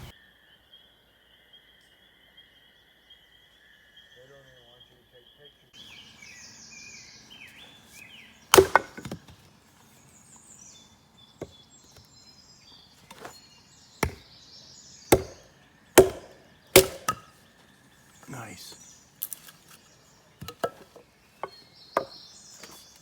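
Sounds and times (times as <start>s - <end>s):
birds chirping faintly: 0.0s - 23.0s
wood being chopped: 8.5s - 9.4s, 13.0s - 13.4s, 14.0s - 14.3s, 15.1s - 17.4s, 20.4s - 22.8s.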